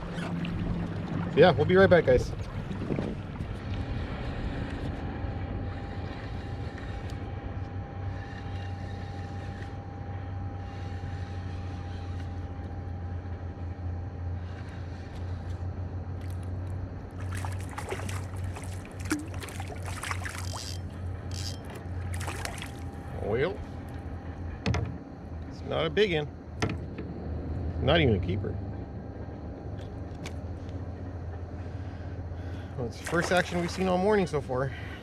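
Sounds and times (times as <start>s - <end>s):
water noise: 0.0s - 13.8s, 16.1s - 30.4s, 32.8s - 35.0s
steady low drone: 0.0s - 35.0s
wind noise: 2.0s - 7.4s
sharp splashes: 17.2s - 21.4s, 22.0s - 22.9s, 33.0s - 34.3s.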